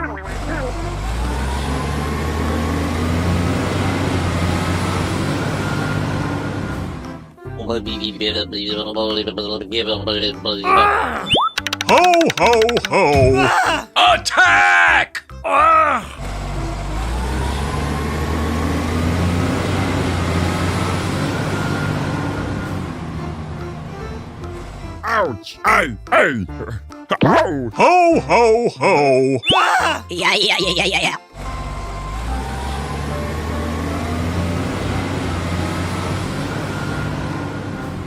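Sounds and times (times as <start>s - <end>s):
truck engine rumbling: 0.0s - 13.5s, 15.3s - 38.0s.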